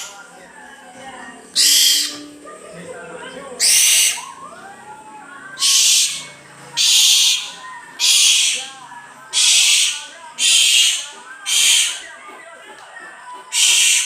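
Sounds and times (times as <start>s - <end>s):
owl hissing screeches: 1.6s - 2.2s, 3.6s - 4.3s, 5.6s - 8.8s, 9.4s - 12.0s, 13.5s - 14.0s.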